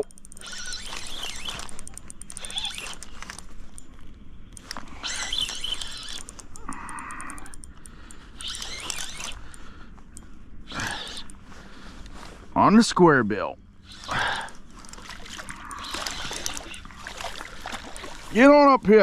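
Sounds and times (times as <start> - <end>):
fishing reel being cranked: 0.0 - 12.3, 13.8 - 18.6
water splashing: 13.9 - 18.6.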